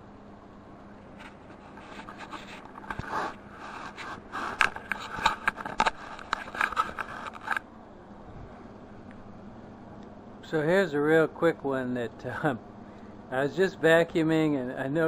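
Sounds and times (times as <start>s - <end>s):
objects scraping and clicking: 1.2s - 7.6s.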